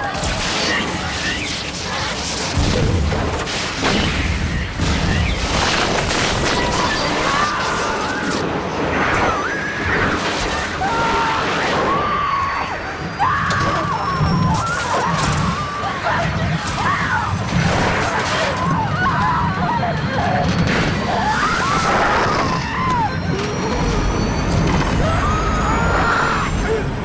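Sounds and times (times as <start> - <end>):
people screaming: 0.0 - 2.5, 4.2 - 27.0
crashes and booms: 0.0 - 8.0.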